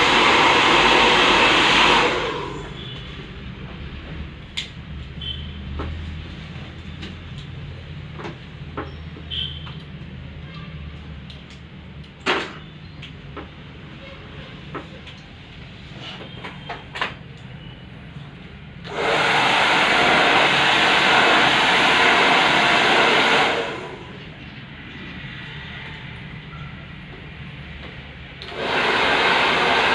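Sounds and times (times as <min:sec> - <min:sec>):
blow dryer running: 0:00.0 - 0:03.0, 0:18.8 - 0:24.3, 0:28.4 - 0:29.9.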